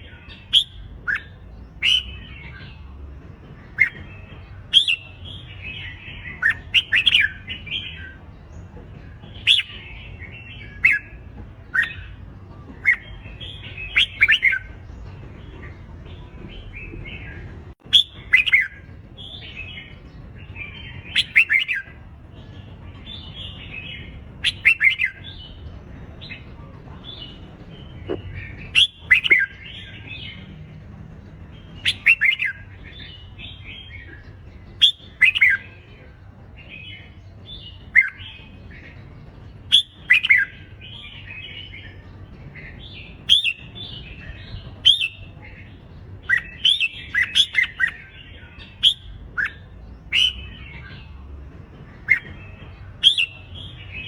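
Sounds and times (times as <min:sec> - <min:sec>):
birds whistling song: 0:00.0 - 0:54.0.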